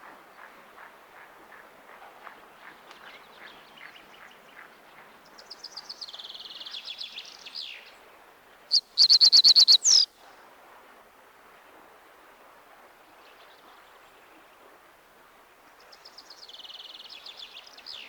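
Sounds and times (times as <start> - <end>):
bird song with quick notes: 8.7 - 10.1
bird trilling: 8.7 - 10.1.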